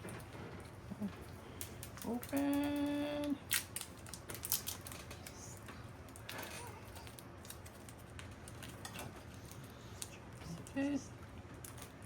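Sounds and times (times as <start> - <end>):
packaging crinkling: 1.6 - 5.4, 6.1 - 10.7.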